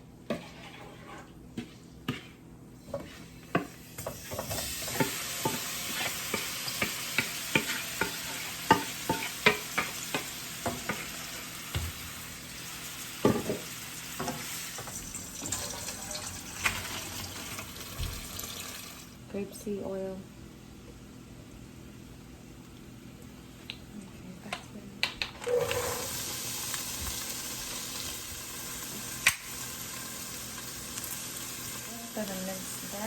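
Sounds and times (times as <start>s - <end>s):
utensil scraping a pan: 0.2s - 3.7s
shrimp sizzling in oil: 3.9s - 19.2s, 25.8s - 33.0s.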